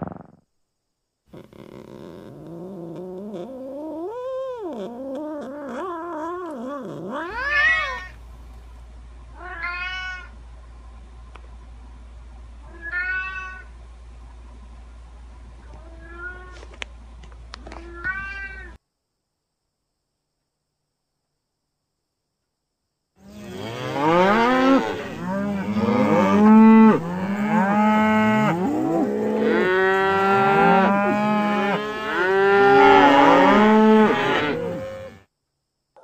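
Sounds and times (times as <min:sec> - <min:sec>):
faint low hum: 0:00.0 - 0:36.0
cats meowing: 0:02.9 - 0:08.2, 0:09.4 - 0:10.3, 0:12.7 - 0:13.7, 0:15.7 - 0:16.6, 0:17.7 - 0:18.8.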